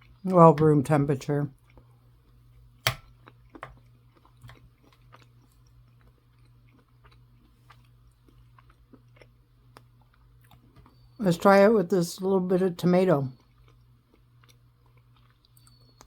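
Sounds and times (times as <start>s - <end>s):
faint low hum: 0.0s - 16.0s
mouth chewing with moist clicks: 1.5s - 11.2s, 13.3s - 16.0s.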